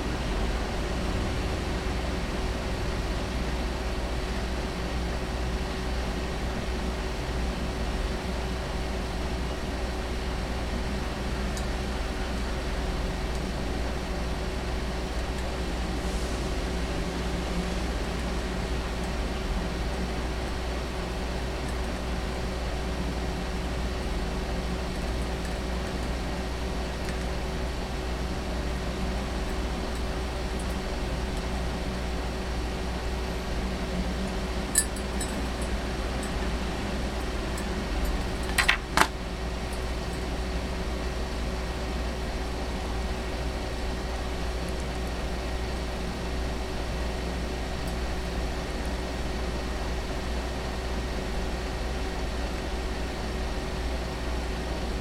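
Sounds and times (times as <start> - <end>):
low mechanical hum: 0.0 - 55.0
sharp clicks and clinks: 34.8 - 36.4, 37.6 - 39.8.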